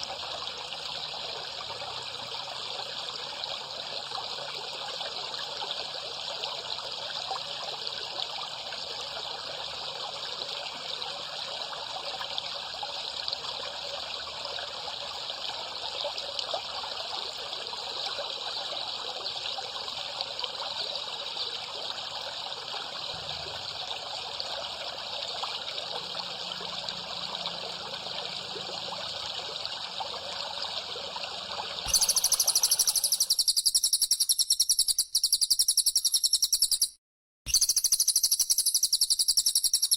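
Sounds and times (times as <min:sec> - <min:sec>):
water trickling: 0:00.0 - 0:33.5
high-pitched pulsing chirping: 0:31.9 - 0:39.9.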